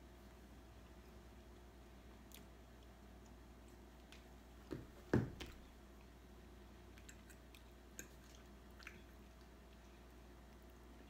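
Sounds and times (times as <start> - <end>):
dull thump: 4.7 - 5.6
person chewing: 6.8 - 10.8.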